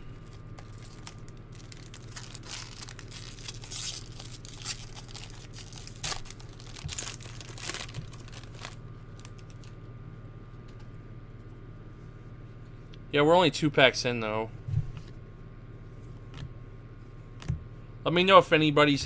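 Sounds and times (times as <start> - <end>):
steady low hum: 0.0 - 19.0
card pack wrapper tearing: 0.2 - 9.7.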